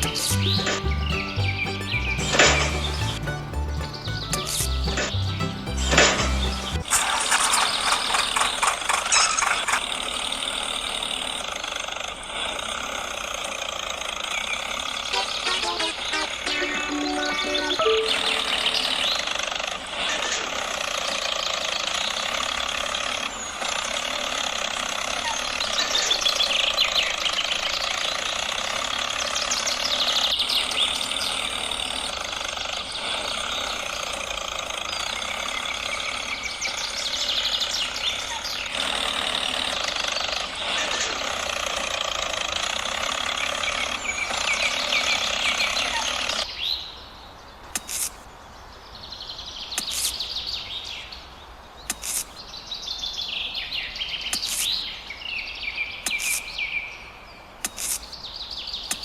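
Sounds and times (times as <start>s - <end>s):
birds chirping: 0.0s - 11.4s, 14.2s - 59.0s
sharp clicks: 47.7s - 48.2s, 49.8s - 50.3s, 51.9s - 52.4s, 54.3s - 54.8s, 56.0s - 56.6s, 57.6s - 58.2s.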